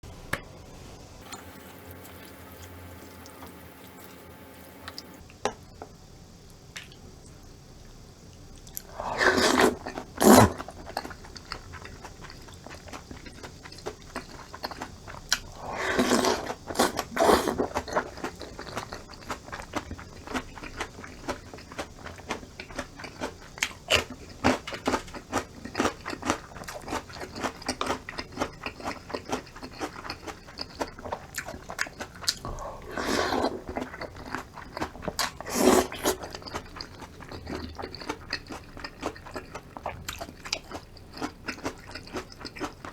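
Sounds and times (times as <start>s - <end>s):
crunchy bites or slurps: 8.8s - 11.1s, 15.3s - 19.4s, 31.4s - 42.8s
wet chewing with clicks: 9.6s - 32.6s, 33.5s - 42.9s.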